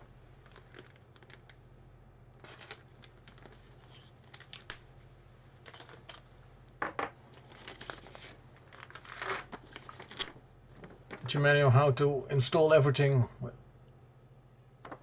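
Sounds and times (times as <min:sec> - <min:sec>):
packaging rustling and crinkling: 0:00.2 - 0:01.7, 0:02.4 - 0:06.2, 0:07.2 - 0:11.3
sharp packaging noise: 0:02.4 - 0:04.9, 0:07.3 - 0:10.4.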